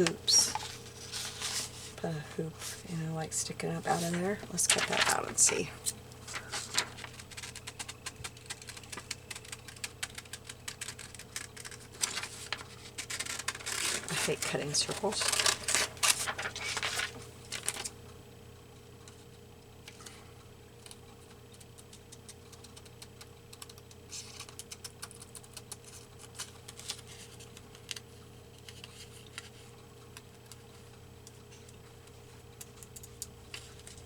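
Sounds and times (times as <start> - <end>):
faint steady hum: 0.0 - 34.0
scissors snipping paper: 6.4 - 17.7.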